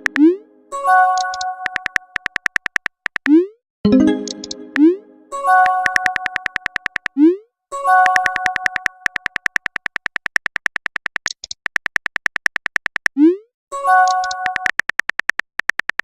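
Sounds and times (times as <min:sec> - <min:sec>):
fast ticking clicks: 0:00.0 - 0:00.3, 0:01.2 - 0:03.4, 0:05.6 - 0:07.2, 0:08.0 - 0:13.2, 0:14.0 - 0:16.0
bright chime chord: 0:03.9 - 0:05.6.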